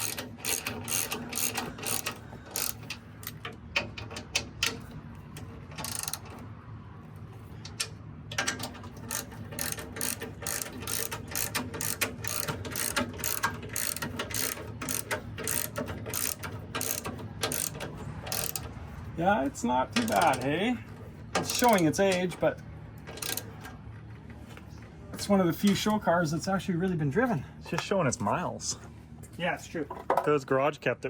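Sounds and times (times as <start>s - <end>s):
ratchet wrench clicking: 0.0s - 6.4s, 8.5s - 18.8s, 23.1s - 23.6s.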